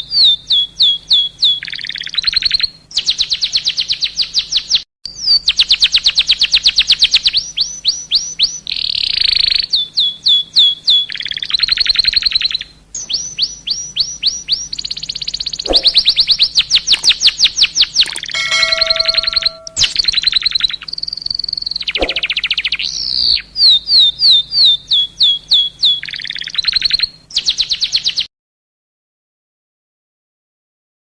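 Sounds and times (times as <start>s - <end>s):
songbird whistled notes: 9.8s - 20.4s
buzzy rattling bird trills: 14.8s - 20.5s, 21.6s - 22.6s.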